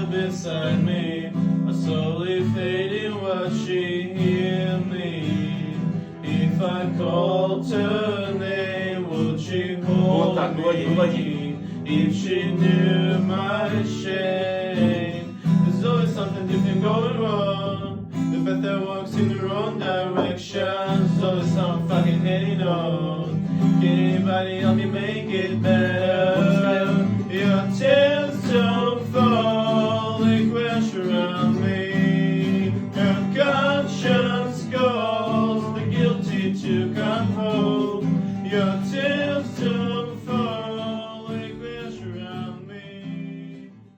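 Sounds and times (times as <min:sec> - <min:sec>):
acoustic guitar: 0:00.0 - 0:43.9
man singing: 0:00.0 - 0:43.9.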